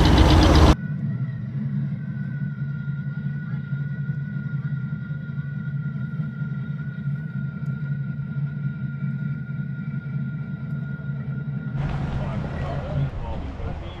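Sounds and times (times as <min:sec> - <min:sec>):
engine running steadily: 0:00.0 - 0:05.5, 0:11.8 - 0:14.0
thin steady whine: 0:00.0 - 0:14.0.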